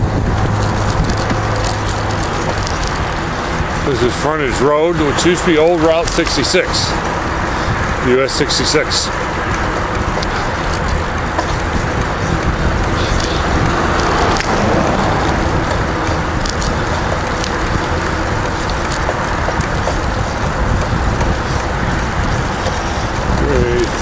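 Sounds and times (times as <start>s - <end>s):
wind rushing: 0.0s - 5.8s, 6.6s - 24.0s
background traffic: 0.0s - 24.0s
bicycle tyre noise on road: 0.0s - 24.0s.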